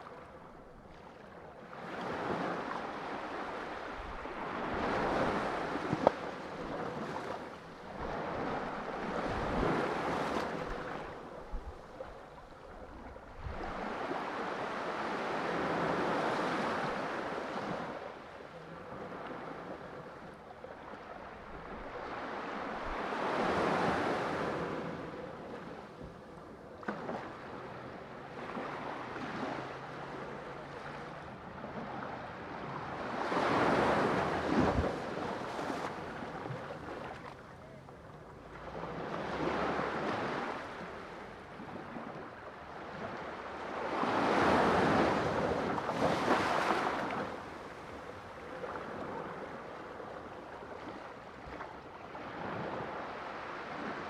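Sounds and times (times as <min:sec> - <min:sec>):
sea waves washing in: 0:00.8 - 0:20.2, 0:38.5 - 0:54.0.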